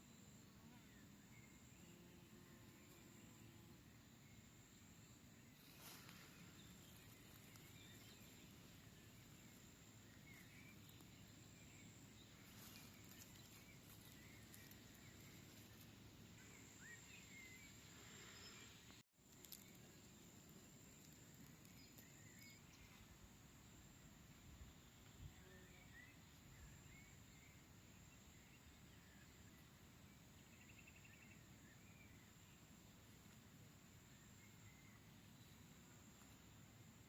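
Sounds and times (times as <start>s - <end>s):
faint bird chirps: 5.4s - 20.0s, 21.6s - 23.2s, 24.6s - 33.4s, 34.1s - 36.4s.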